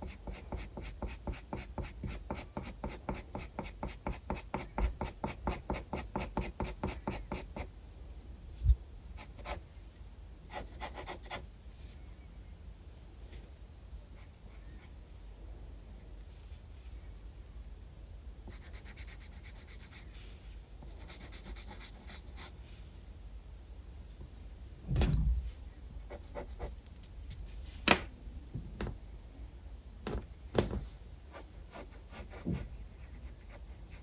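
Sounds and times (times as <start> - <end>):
light pencil scratches: 0.0 - 7.7, 10.5 - 11.4, 26.0 - 27.6, 30.8 - 34.0
pencil shading on paper: 0.0 - 7.7, 31.3 - 34.0.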